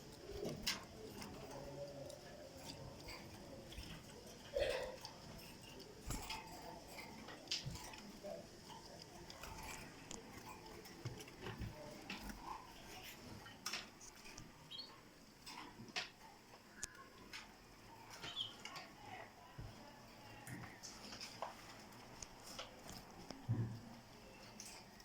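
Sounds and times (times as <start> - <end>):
bird chirps: 18.2 - 18.7.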